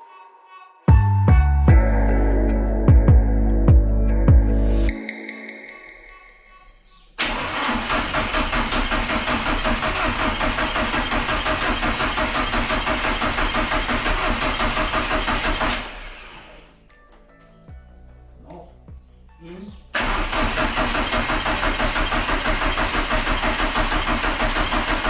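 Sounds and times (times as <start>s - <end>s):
diesel engine cranking on starter: 7.2s - 16.7s, 20.0s - 25.0s.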